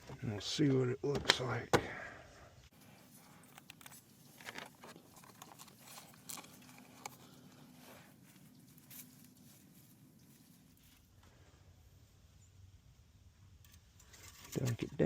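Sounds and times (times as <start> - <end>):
faint rustles: 2.7 - 12.5.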